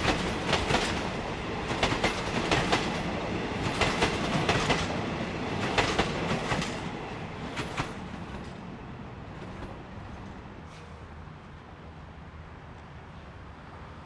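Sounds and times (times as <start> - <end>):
train wheels clacking over rail joints: 0.0 - 8.6
train rumble: 0.0 - 12.3.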